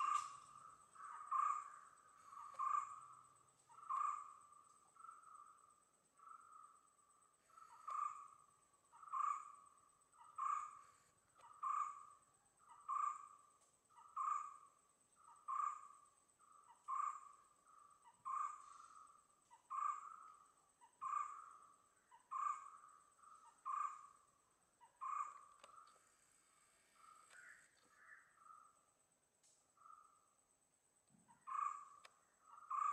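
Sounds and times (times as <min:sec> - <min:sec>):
high-pitched insect drone: 0:00.0 - 0:04.2.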